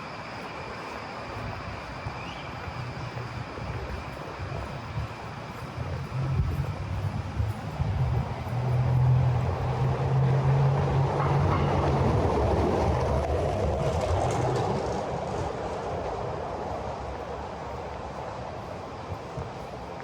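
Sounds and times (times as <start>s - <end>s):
heavy vehicle passing: 5.8s - 17.2s.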